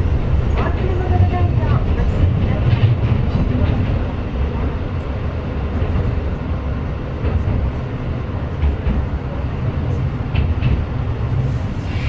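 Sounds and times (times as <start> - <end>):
railcar engine rumble: 0.0 - 12.0.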